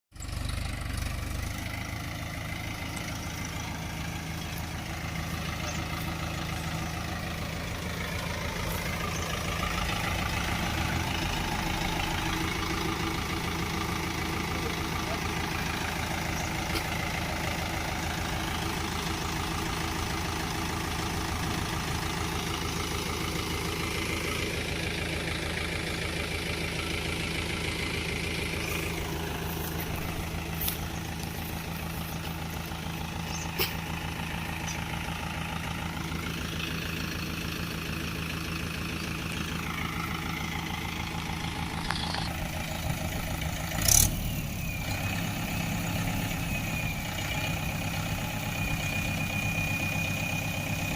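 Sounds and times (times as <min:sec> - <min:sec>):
tractor diesel engine idling: 0:00.1 - 0:50.9.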